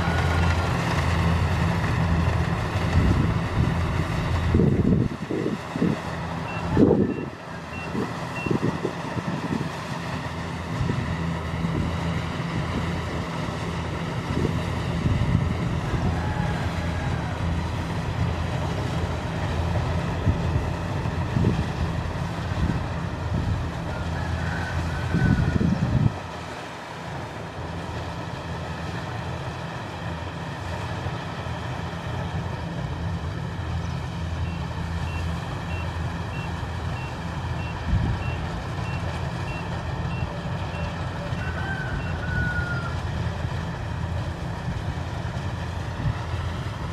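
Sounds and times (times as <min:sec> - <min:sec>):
diesel engine running: 0:00.0 - 0:46.9
wind buffeting microphone: 0:02.8 - 0:09.8, 0:24.9 - 0:26.3
reversing alarm beeping: 0:06.4 - 0:08.7, 0:34.4 - 0:42.3.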